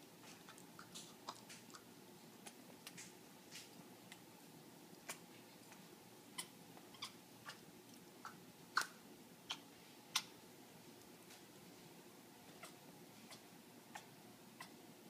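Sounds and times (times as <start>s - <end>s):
parrot clicking and clucking: 0.2s - 4.2s, 5.0s - 10.4s, 12.5s - 14.8s.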